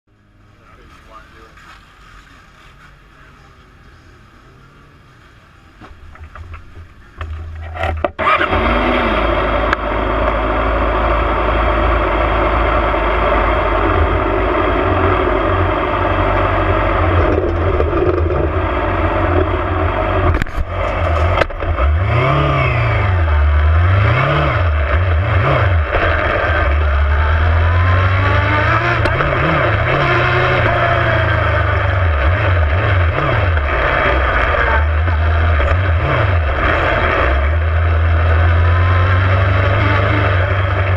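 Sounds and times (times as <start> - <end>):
superbike engine revving: 6.3 - 40.9
low rumble: 8.8 - 40.9.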